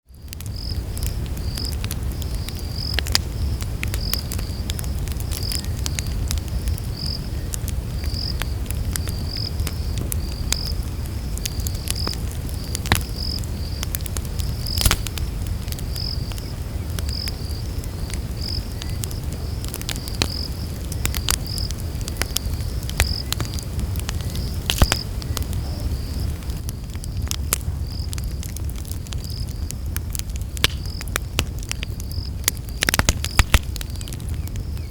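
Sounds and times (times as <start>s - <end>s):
campfire crackling and popping: 0.1s - 34.9s
insect chirping: 2.2s - 21.7s, 22.4s - 27.2s.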